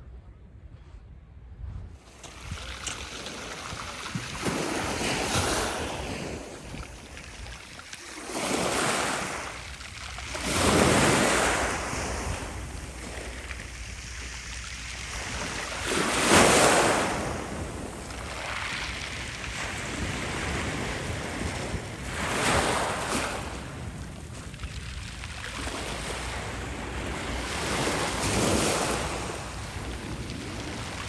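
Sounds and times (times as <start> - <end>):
wind buffeting microphone: 0.6 - 31.0
waves breaking on shore: 2.0 - 31.0.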